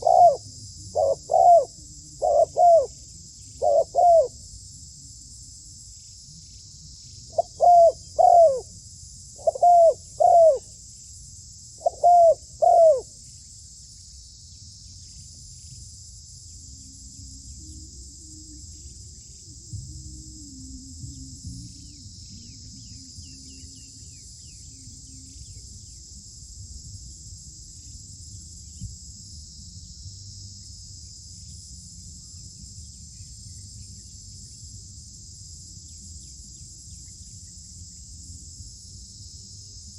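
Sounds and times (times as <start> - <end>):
dove cooing: 0.0 - 3.0, 3.6 - 4.4, 7.3 - 8.7, 9.4 - 10.7, 11.8 - 13.1
high insect chirring: 0.0 - 39.9.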